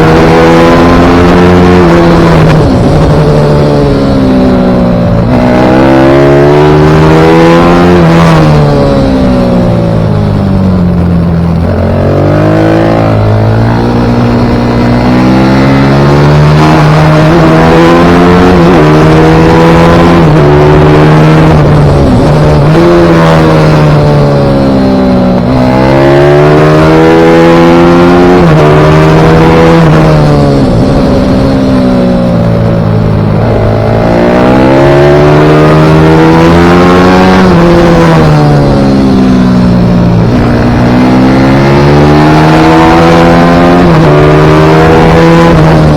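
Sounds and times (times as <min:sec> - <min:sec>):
pit bike engine accelerating: 0:00.0 - 0:45.9.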